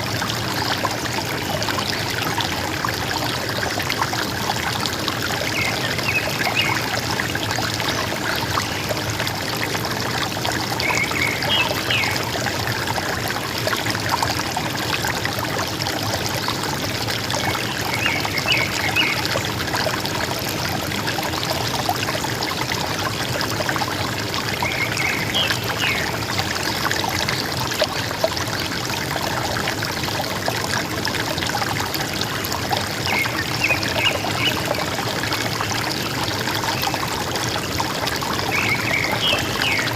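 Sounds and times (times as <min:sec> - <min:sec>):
river water running: 0:00.0 - 0:39.9.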